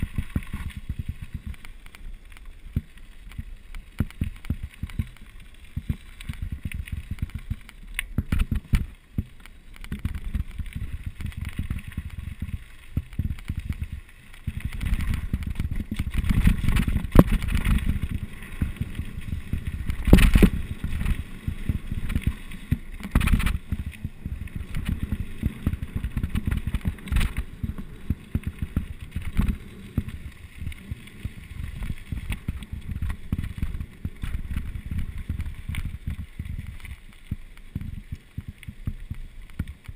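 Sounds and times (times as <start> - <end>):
bike rattling and knocking: 0.0 - 2.0, 2.7 - 39.9
bike tyre rumble: 0.0 - 39.9
wind buffeting microphone: 10.0 - 37.0.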